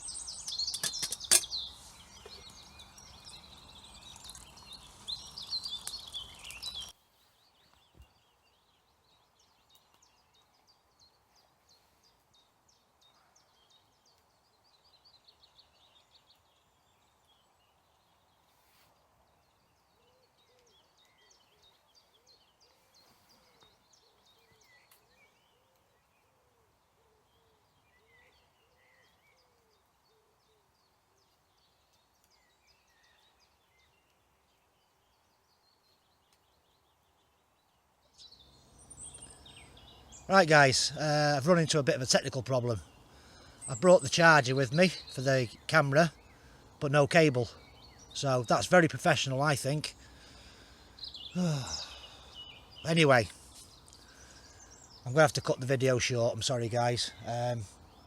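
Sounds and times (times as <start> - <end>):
small birds chirping: 0.0 - 58.0
low bird call: 49.4 - 55.5.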